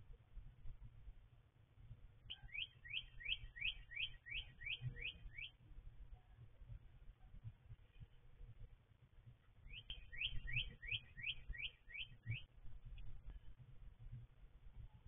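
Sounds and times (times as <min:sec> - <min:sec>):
bird chirping rising notes: 0:09.7 - 0:12.5.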